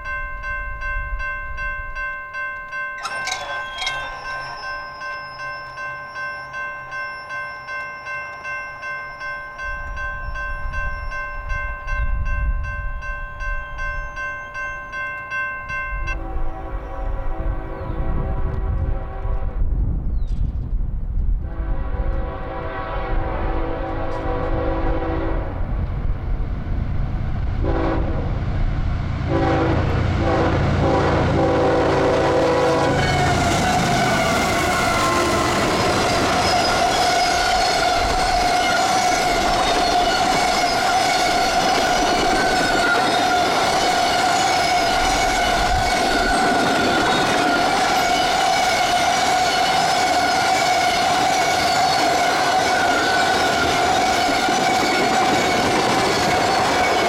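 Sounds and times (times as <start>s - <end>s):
steady high tone: 0.0s - 16.2s
tank cars rolling past: 3.0s - 5.7s
wheel clickety-clack: 3.0s - 5.8s, 33.7s - 57.0s
locomotive air horn: 16.1s - 19.8s, 21.4s - 25.6s, 27.6s - 28.4s, 29.3s - 55.4s.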